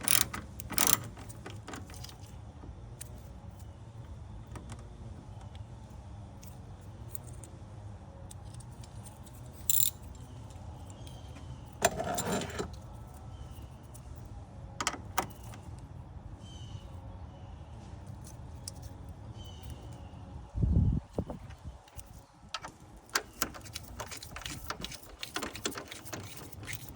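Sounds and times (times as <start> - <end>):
metal tools clinking: 8.4 - 10.6, 11.8 - 13.1, 21.9 - 26.9.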